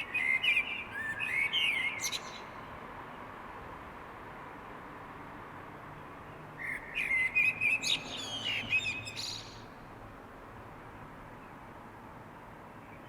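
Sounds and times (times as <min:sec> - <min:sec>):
songbird warbling: 0:06.6 - 0:09.7.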